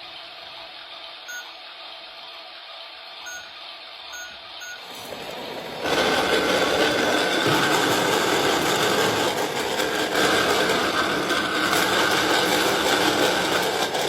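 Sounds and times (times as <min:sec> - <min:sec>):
washing machine beeping: 0:00.0 - 0:08.9.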